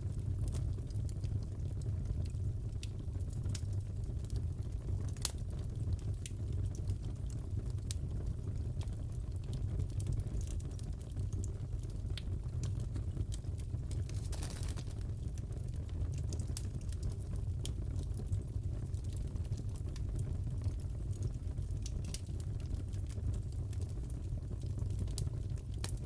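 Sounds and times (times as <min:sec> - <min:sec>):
fire pops and crackles: 0:00.0 - 0:26.0
burning wood rumble: 0:10.2 - 0:26.0.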